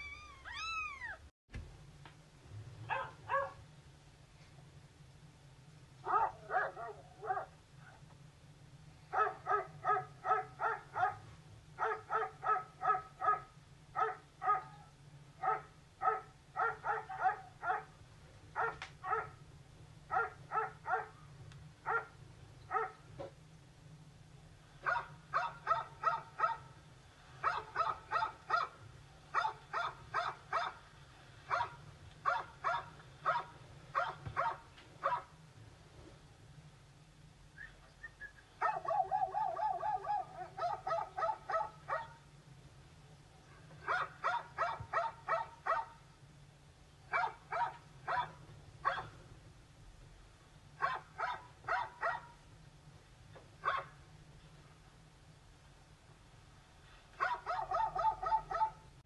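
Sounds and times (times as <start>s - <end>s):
dog barking: 2.9s - 3.6s, 6.0s - 7.6s, 9.1s - 17.9s, 18.6s - 19.4s, 20.1s - 21.2s, 21.8s - 23.0s, 24.8s - 26.7s, 27.4s - 30.8s, 31.5s - 35.3s, 38.6s - 42.2s, 43.8s - 46.0s, 47.1s - 49.2s, 50.8s - 52.4s, 53.6s - 54.0s, 57.2s - 58.9s.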